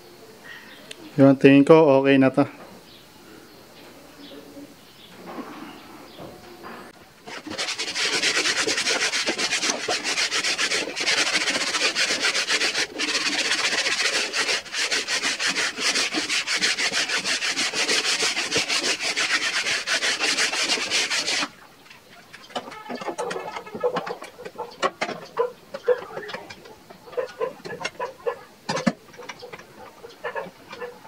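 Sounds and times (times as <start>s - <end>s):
hand sanding wood: 7.2s - 21.6s, 23.2s - 31.0s.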